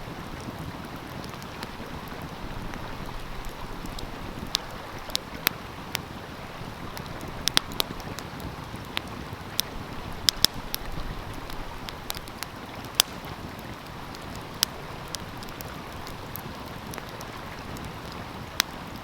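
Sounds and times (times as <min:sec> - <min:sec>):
stream flowing: 0:00.0 - 0:19.0
wood fire crackling: 0:00.0 - 0:19.0.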